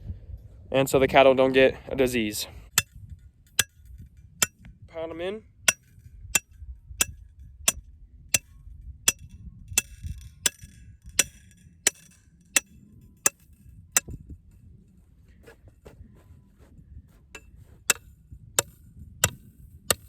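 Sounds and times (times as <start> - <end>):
metal post being pounded: 2.8 - 4.6, 5.7 - 7.8, 8.4 - 14.2, 17.4 - 20.0.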